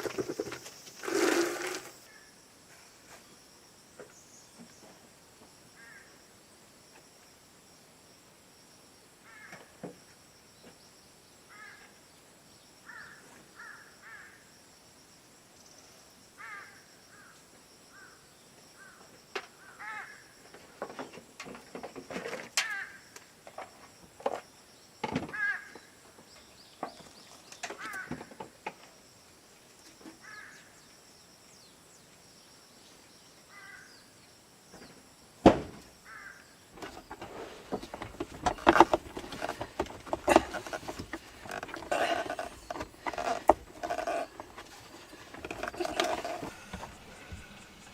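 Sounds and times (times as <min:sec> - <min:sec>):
crows cawing: 0:05.8 - 0:06.1, 0:09.3 - 0:09.7, 0:11.5 - 0:11.9, 0:12.8 - 0:14.4, 0:16.4 - 0:17.3, 0:19.6 - 0:20.2, 0:22.6 - 0:23.0, 0:25.3 - 0:25.9, 0:27.8 - 0:28.3, 0:30.2 - 0:30.6, 0:33.5 - 0:33.9, 0:36.0 - 0:36.5.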